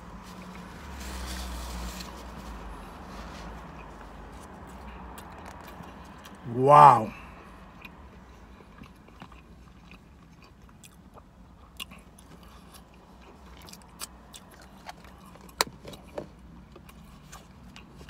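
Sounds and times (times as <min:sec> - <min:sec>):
quiet chewing mouth sounds: 0:02.9 - 0:06.4, 0:07.6 - 0:16.1.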